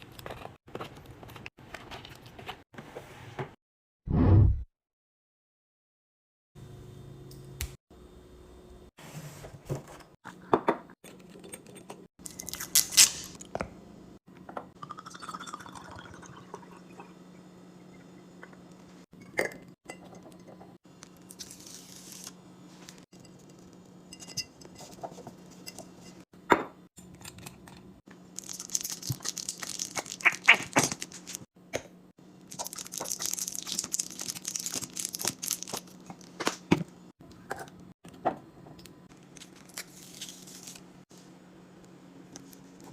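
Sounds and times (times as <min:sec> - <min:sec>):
plastic packaging rustling: 0:28.4 - 0:31.4, 0:32.5 - 0:36.4, 0:39.4 - 0:40.8.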